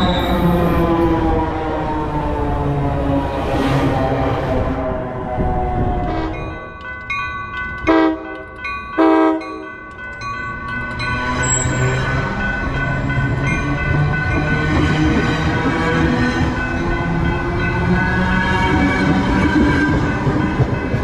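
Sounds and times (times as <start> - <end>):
train wheels rumbling on rails: 0.0 - 21.0
crossing bells ringing: 5.7 - 21.0
train horn blasts: 6.0 - 6.6, 7.9 - 8.4, 9.0 - 9.6.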